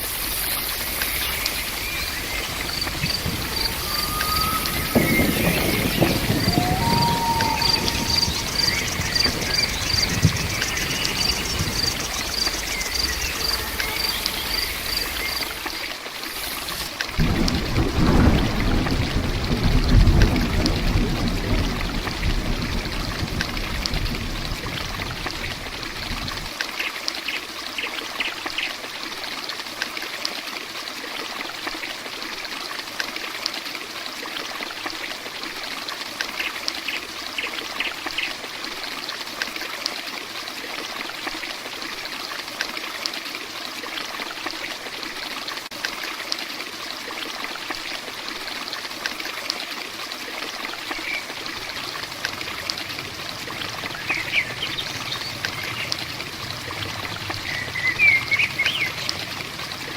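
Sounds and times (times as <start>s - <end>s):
heavy rain falling: 0.0s - 26.6s, 49.9s - 59.9s.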